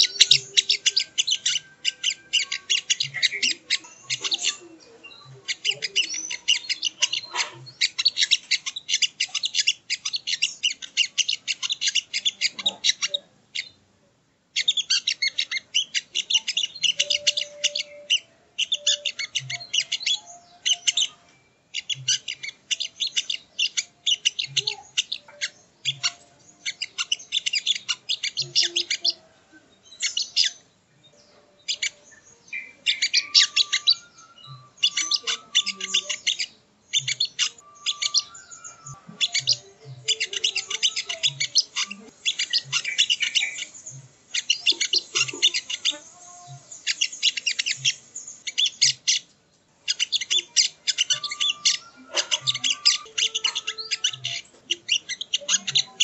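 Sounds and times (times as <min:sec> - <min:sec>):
bird singing chattering trills: 0:00.0 - 0:13.8, 0:14.6 - 0:56.0.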